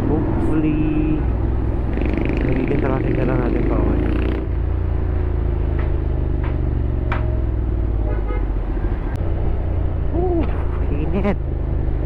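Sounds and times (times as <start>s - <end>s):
motorcycle engine running at low revs: 0.0s - 10.7s.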